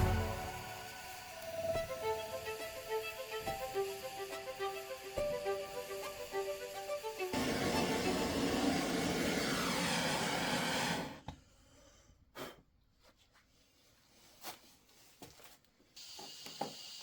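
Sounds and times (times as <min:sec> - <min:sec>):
gas torch flame hissing: 0:00.0 - 0:11.2, 0:16.0 - 0:17.0.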